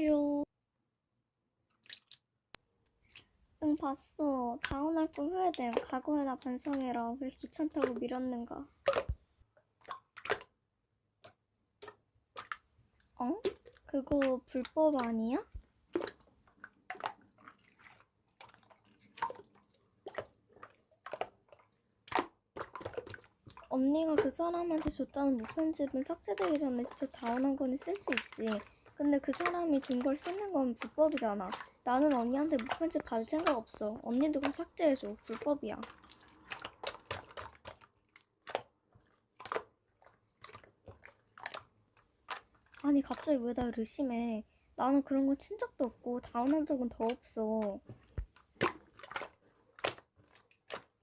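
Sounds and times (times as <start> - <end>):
soft drip-like taps: 11.2 - 14.4, 15.0 - 43.8, 46.4 - 50.9.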